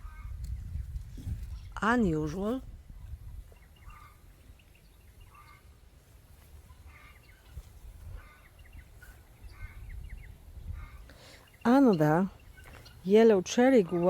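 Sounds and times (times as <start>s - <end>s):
wind on microphone: 0.0s - 4.6s, 7.5s - 11.2s
faint bird chirps: 3.0s - 5.8s.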